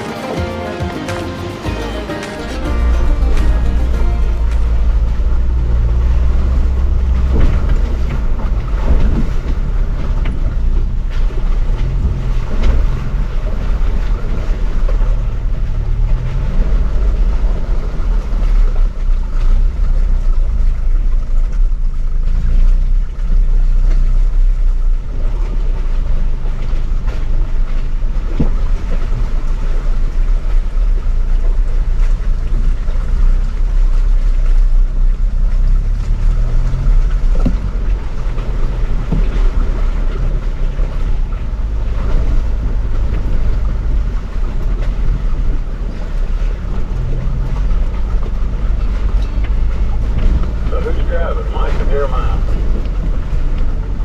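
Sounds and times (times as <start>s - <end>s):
engine rumbling at low speed: 2.7s - 54.0s.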